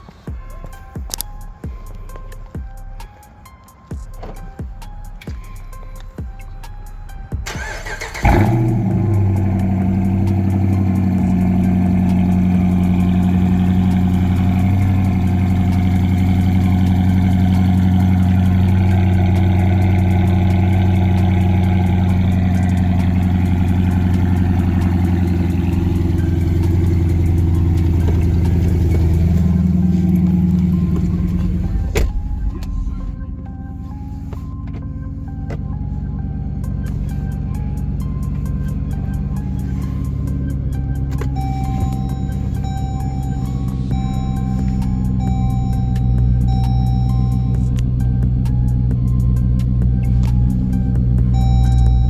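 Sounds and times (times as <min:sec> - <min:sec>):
car engine starting and idling: 0:00.0 - 0:52.0.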